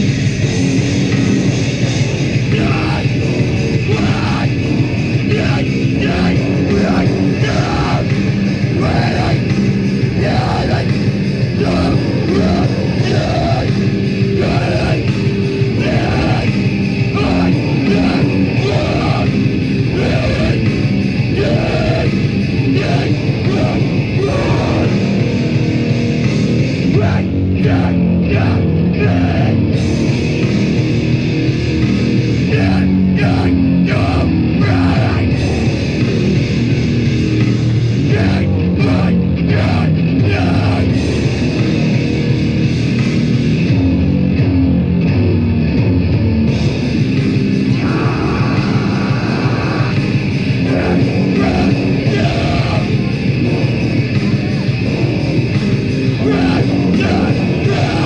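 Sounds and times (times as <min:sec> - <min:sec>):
distorted guitar bass and drums: 0:00.0 - 0:58.0
screamed vocals: 0:02.4 - 0:25.4, 0:26.8 - 0:29.8, 0:32.4 - 0:35.8, 0:38.0 - 0:41.6, 0:47.7 - 0:54.2, 0:56.0 - 0:58.0.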